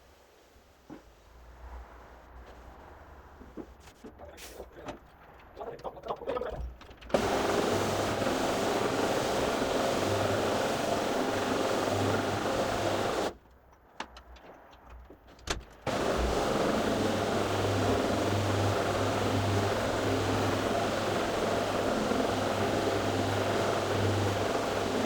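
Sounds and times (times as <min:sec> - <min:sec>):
vacuum motor humming: 0:07.1 - 0:13.4, 0:15.9 - 0:25.0.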